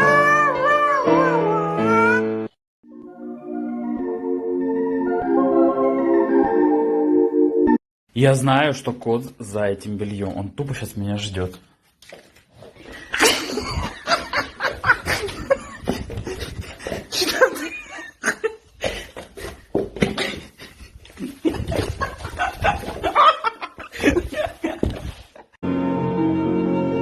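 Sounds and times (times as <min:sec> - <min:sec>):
person laughing hard: 0:13.1 - 0:25.2.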